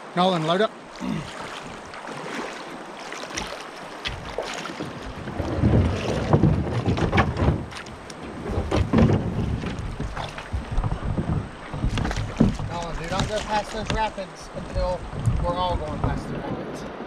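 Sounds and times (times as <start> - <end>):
kayak knocks and scrapes: 1.3 - 16.8
wind rumble on microphone: 4.1 - 17.0.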